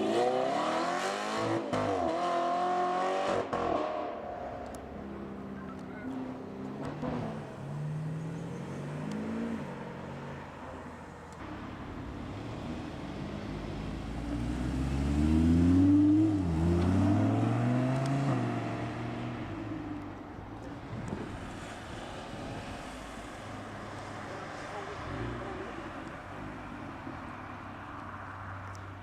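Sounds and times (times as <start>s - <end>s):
car engine revving: 0.0s - 28.7s
car accelerating past: 12.2s - 20.0s.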